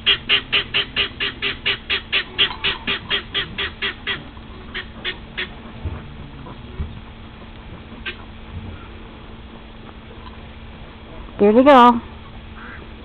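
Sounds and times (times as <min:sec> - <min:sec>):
bird squawking: 0:00.0 - 0:05.6, 0:08.0 - 0:09.0, 0:12.5 - 0:13.0.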